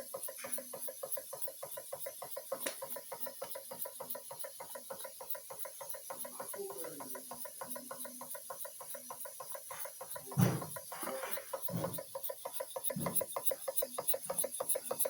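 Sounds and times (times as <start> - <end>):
model steam engine exhaust beats: 0.0 - 15.0.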